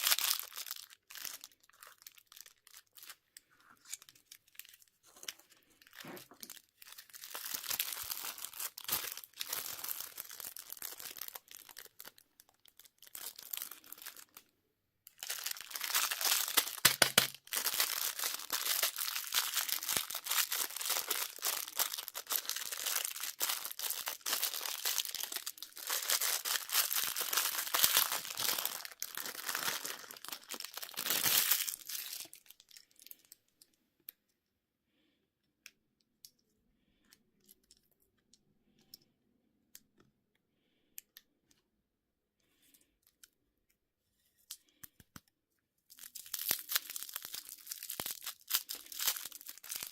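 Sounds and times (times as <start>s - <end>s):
candy wrapper crinkling: 0.0s - 14.5s, 15.1s - 33.6s, 45.9s - 49.9s.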